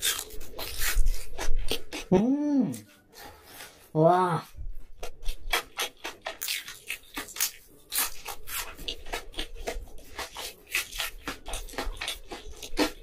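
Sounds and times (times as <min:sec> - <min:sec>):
crunchy chewing: 0:00.0 - 0:02.1, 0:04.8 - 0:13.0.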